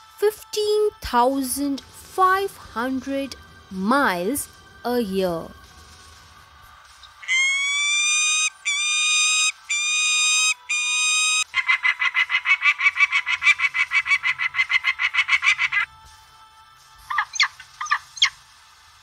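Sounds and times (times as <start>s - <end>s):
falcon calling: 7.2s - 15.9s, 17.1s - 18.3s.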